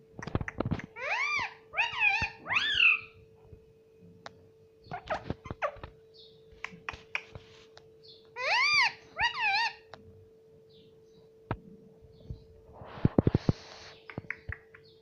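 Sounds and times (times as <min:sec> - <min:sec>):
faint steady hum: 0:00.0 - 0:15.0
parrot calling loudly: 0:01.0 - 0:03.2, 0:08.4 - 0:09.9.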